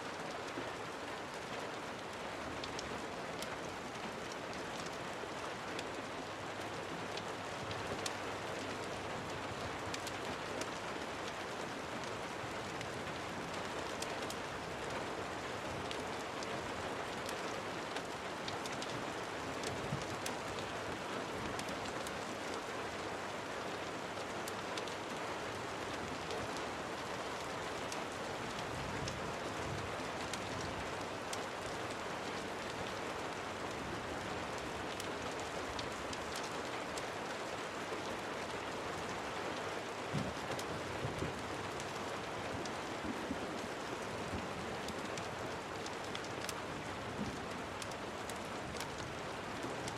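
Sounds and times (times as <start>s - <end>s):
steady rain falling: 0.0s - 49.9s
raindrops ticking: 1.2s - 39.2s, 39.9s - 49.9s.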